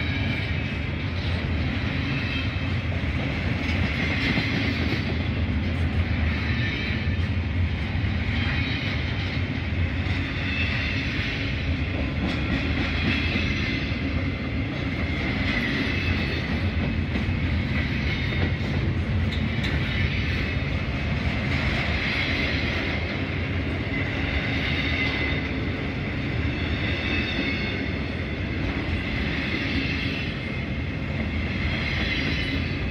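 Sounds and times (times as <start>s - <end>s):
freight train rolling past: 0.0s - 32.9s.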